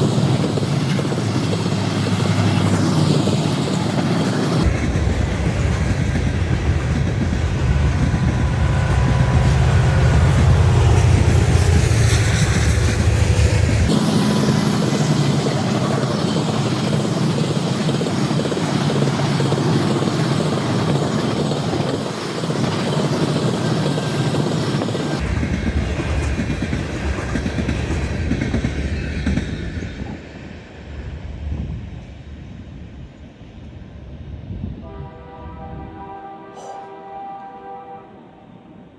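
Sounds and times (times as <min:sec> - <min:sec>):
train wheels clattering over rails: 0:00.0 - 0:30.1.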